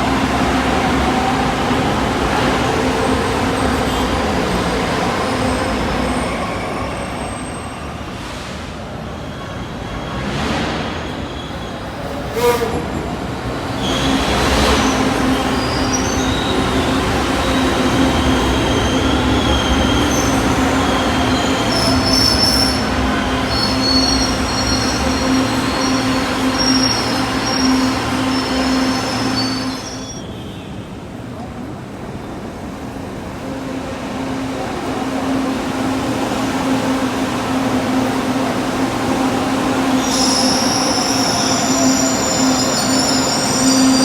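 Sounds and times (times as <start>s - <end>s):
light-rail train rail noise: 0.0s - 44.0s
wheel squeal: 9.2s - 30.4s, 40.0s - 44.0s.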